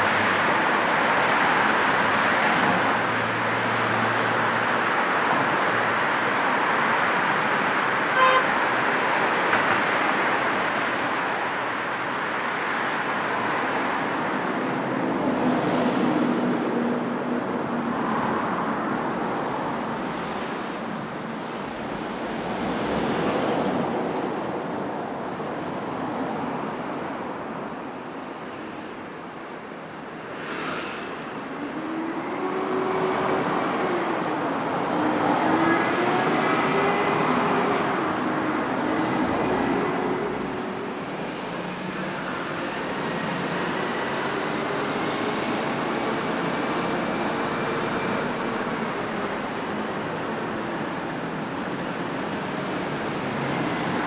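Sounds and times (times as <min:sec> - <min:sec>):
road traffic passing: 0:00.0 - 0:54.0
short car horn toot: 0:08.2 - 0:08.5.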